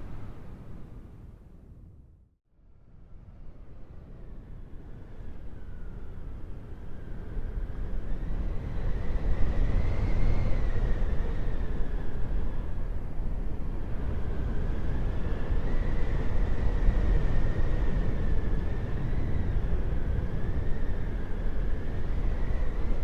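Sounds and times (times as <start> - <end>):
howling wind: 0.0 - 23.0.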